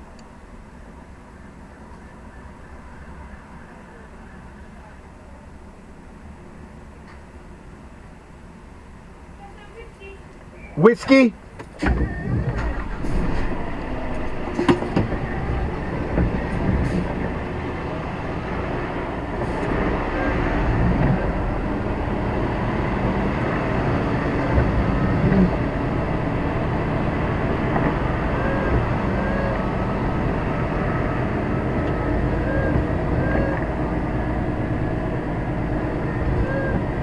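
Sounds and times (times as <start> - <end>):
lorry diesel engine rumbling: 0.0 - 37.0
sharp knocks: 11.6 - 17.4
rattles: 11.6 - 17.6.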